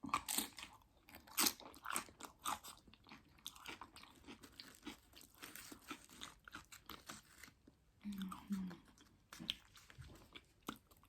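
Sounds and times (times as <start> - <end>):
chewing crunchy chips: 0.0 - 11.0.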